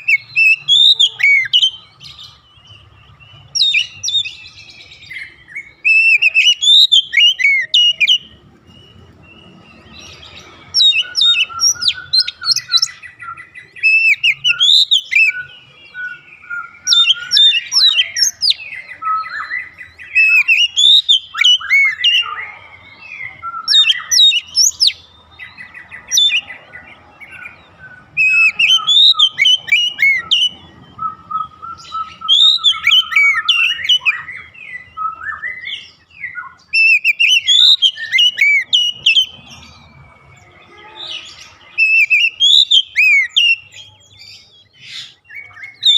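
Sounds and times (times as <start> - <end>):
bird singing whistles and chirps: 0.0 - 45.9.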